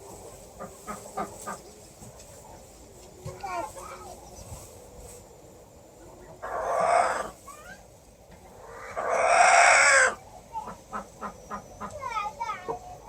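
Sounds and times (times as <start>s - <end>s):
farm animal calling harshly: 6.4s - 7.8s, 8.6s - 12.2s.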